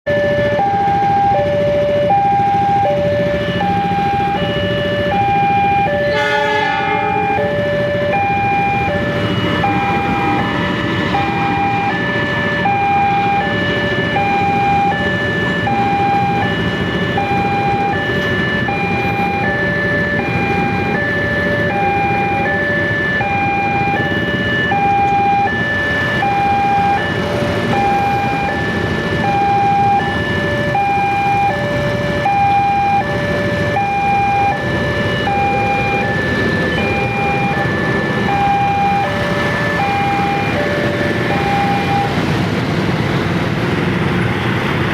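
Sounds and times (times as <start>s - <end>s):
level crossing two-tone alarm: 0.1s - 42.6s
continuous rumble: 0.1s - 44.9s
horn blast: 6.0s - 7.5s.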